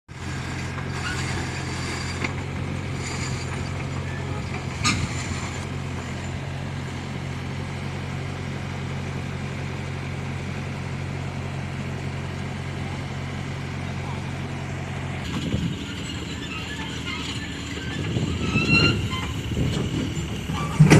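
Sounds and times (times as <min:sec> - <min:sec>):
excavator diesel engine running: 0:00.1 - 0:20.9
metallic squeaks and clanks: 0:00.3 - 0:06.4, 0:15.2 - 0:20.9.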